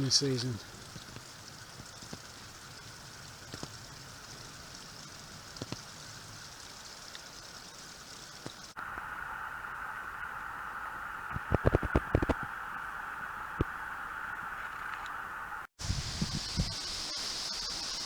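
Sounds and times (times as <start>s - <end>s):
steady outdoor hiss: 0.0s - 18.0s
faint clicks: 4.8s - 6.0s.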